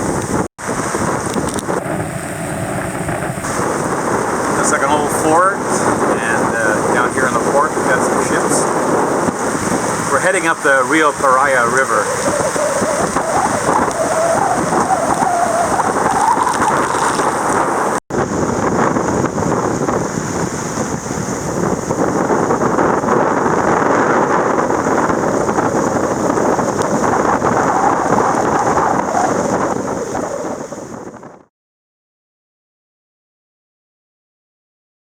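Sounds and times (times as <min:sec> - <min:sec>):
wind: 0:00.0 - 0:31.5
rain: 0:12.0 - 0:18.0.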